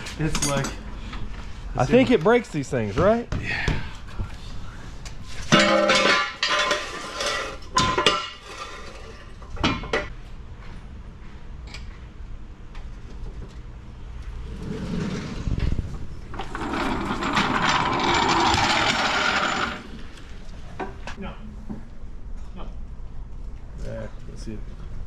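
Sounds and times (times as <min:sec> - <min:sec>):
metal tools clanking: 0:00.2 - 0:00.8, 0:05.5 - 0:08.8, 0:16.3 - 0:20.0.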